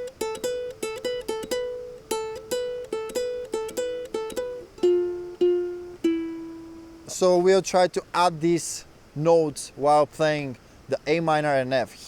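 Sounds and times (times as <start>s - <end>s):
ukulele picking notes: 0.0s - 7.4s.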